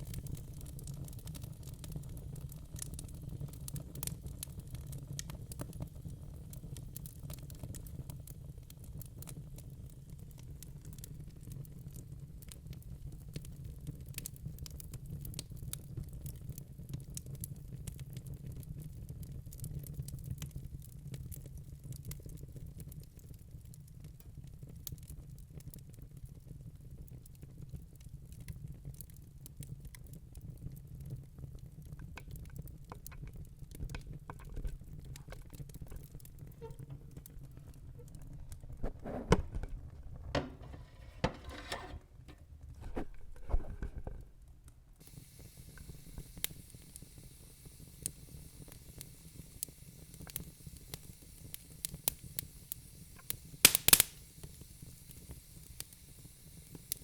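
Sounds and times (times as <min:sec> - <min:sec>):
fire crackling and popping: 0:00.0 - 0:57.0
steady hiss: 0:45.0 - 0:57.0.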